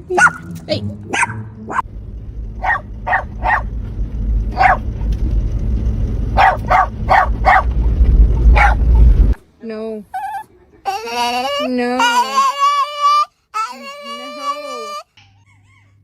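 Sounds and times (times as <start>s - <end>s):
steady low rumble: 0.0s - 10.8s
dog barking: 0.1s - 0.5s, 1.1s - 1.8s, 2.6s - 3.7s, 4.6s - 4.8s, 6.4s - 7.7s, 8.5s - 8.8s.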